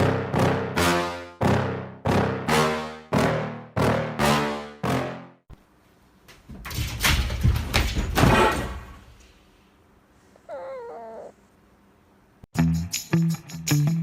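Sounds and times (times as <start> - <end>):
pet crying: 10.4 - 11.5.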